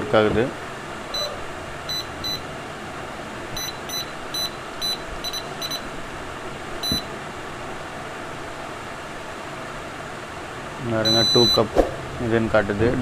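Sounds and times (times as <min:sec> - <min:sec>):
steady background hiss: 0:00.0 - 0:13.0
high-pitched electronic beeps: 0:01.1 - 0:02.4, 0:03.6 - 0:05.9, 0:06.8 - 0:07.0, 0:11.0 - 0:11.7.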